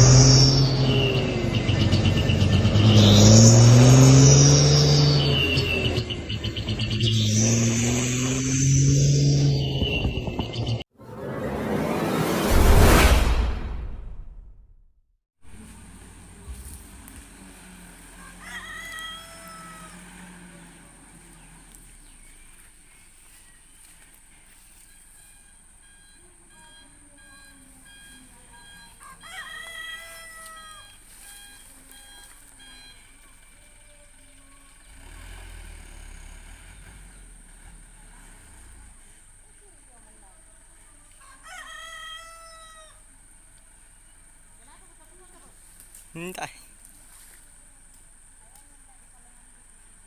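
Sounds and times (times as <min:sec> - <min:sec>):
diesel truck engine revving: 0:00.0 - 0:13.2, 0:15.4 - 0:23.0, 0:32.3 - 0:39.7
rooster crowing: 0:18.0 - 0:20.5, 0:28.9 - 0:31.0, 0:41.2 - 0:43.1.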